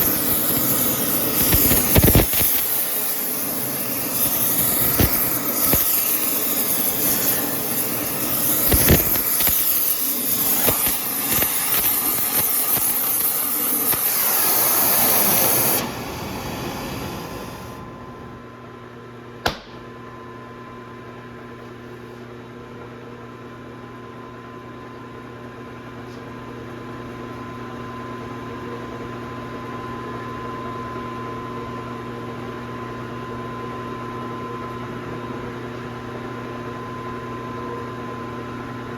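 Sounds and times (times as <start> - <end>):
welding arc hissing and crackling: 0.0 - 17.8
electrical hum: 0.0 - 21.4
sharp click: 1.5 - 2.7.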